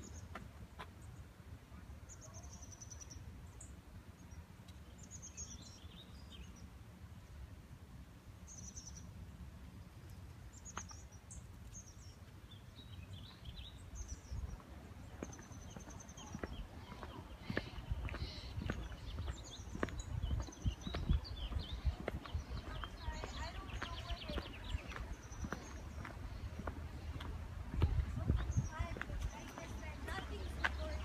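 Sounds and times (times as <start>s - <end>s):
small birds chirping: 0.0s - 7.4s, 8.4s - 31.0s
steady low rumble: 11.8s - 31.0s.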